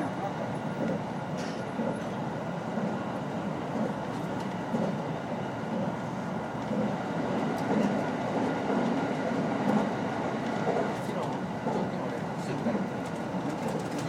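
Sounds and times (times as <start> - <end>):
oncoming train passing: 0.0 - 14.0
train wheels rumbling on rail: 0.0 - 14.0.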